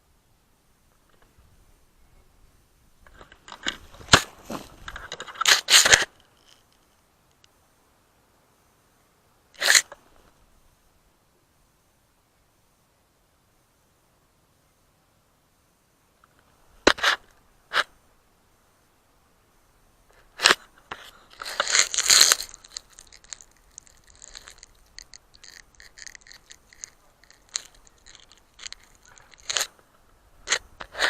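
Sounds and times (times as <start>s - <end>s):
crunching scraping rustle: 3.0s - 7.0s, 9.6s - 10.4s, 16.3s - 17.9s, 20.1s - 31.0s.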